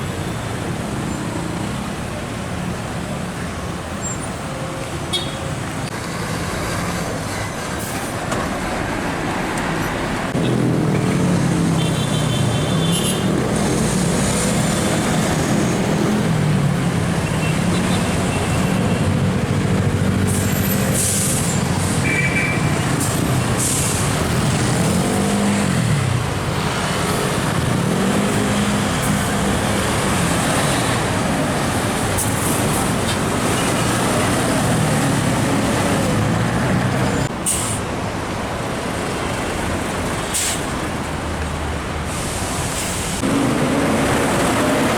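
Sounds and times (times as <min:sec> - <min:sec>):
diesel trucks passing: 0:00.0 - 0:44.9
road noise: 0:00.0 - 0:44.9
air brake hisses: 0:37.4 - 0:37.9, 0:40.3 - 0:40.7, 0:42.1 - 0:43.2.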